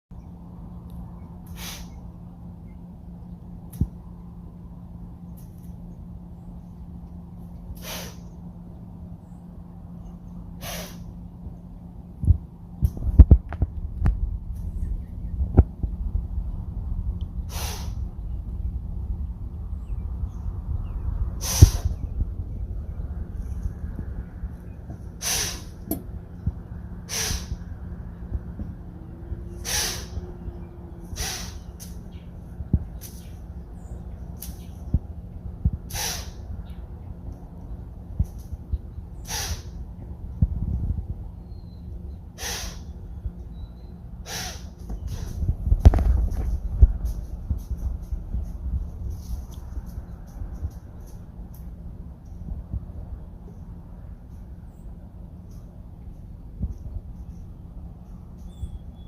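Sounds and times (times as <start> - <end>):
deer snorting: 1.5 - 1.9, 7.8 - 8.3, 10.6 - 11.0, 17.5 - 18.0, 21.4 - 21.8, 25.2 - 25.8, 27.1 - 27.5, 29.6 - 30.2, 31.2 - 31.6, 35.9 - 36.4, 39.3 - 39.7, 42.4 - 42.8, 44.2 - 45.3.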